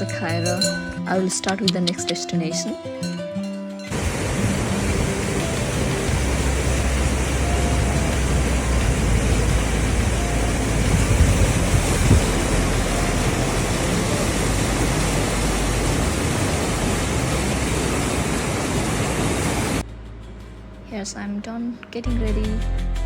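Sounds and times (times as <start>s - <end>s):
loud rushing noise with rumble: 3.9s - 20.8s.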